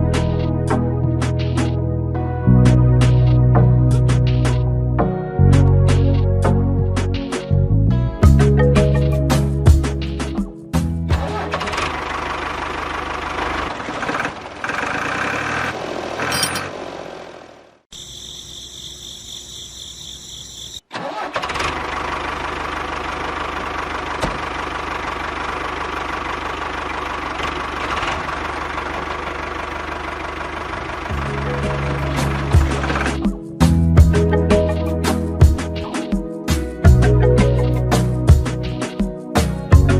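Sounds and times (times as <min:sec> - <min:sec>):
engine running with low hum: 0:10.8 - 0:34.7.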